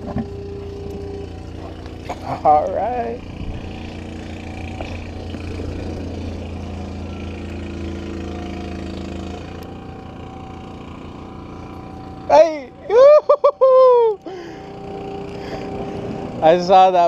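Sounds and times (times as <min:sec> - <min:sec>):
engine running low hum: 0:00.0 - 0:17.0.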